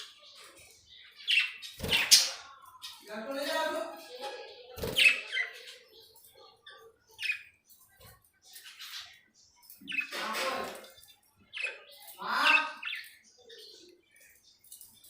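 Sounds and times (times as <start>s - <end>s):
budgerigars chirping: 0.0s - 3.4s.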